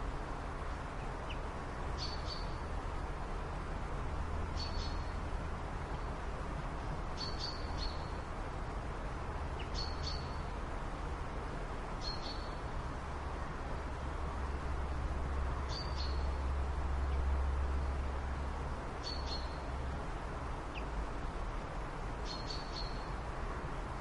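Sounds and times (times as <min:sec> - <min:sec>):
bird chirping: 0:02.0 - 0:02.6, 0:04.6 - 0:05.1, 0:07.2 - 0:08.2, 0:09.6 - 0:10.4, 0:12.0 - 0:12.6, 0:15.7 - 0:16.4, 0:19.0 - 0:19.6, 0:22.2 - 0:23.1.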